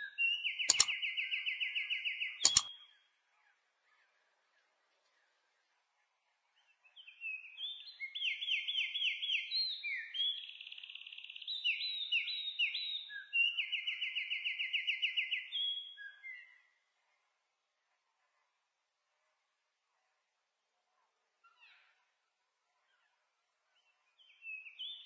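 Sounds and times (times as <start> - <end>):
songbird singing: 0.0 - 2.8.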